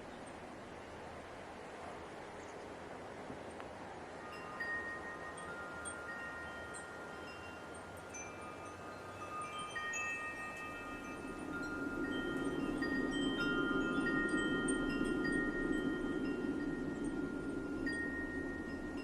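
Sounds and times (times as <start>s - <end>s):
light wind hissing: 0.0s - 19.0s
wind chimes ringing: 4.1s - 19.0s.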